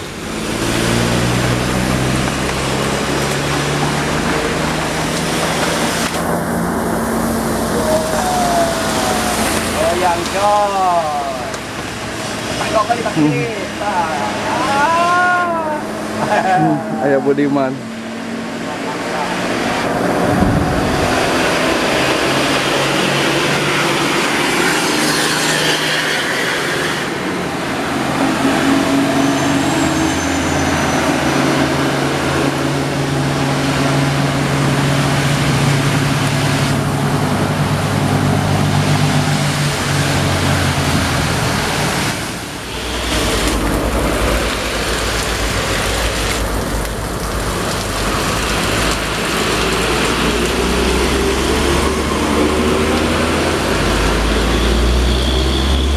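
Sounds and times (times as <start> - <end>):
diesel truck engine labouring: 0.0 - 55.9
rain: 0.0 - 55.9
road noise: 0.0 - 55.9.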